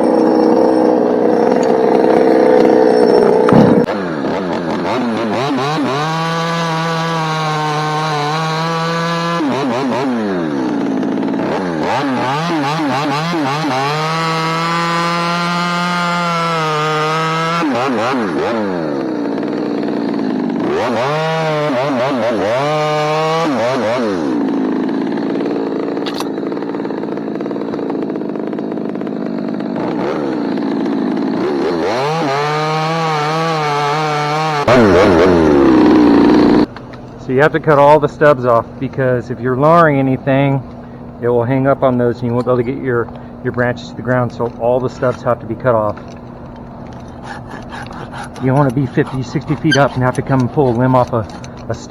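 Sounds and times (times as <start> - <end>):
chainsaw cutting branches: 0.0 - 51.9.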